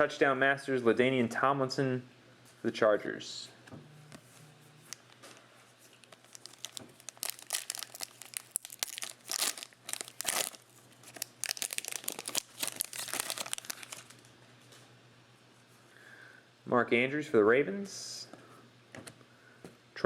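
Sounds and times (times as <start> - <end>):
wrapper crinkling and tearing: 5.8 - 14.3.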